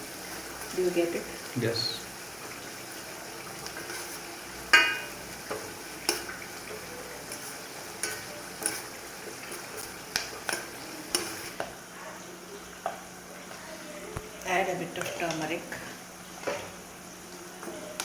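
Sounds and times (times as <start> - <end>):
spices sizzling in a pan: 0.0 - 18.0
metal spoon clinking on a pan: 4.7 - 5.2.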